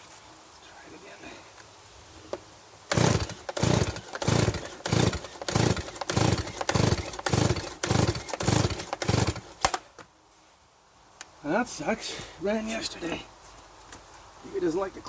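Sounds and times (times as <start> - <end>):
chainsaw recoil starter pulls: 2.9 - 9.8.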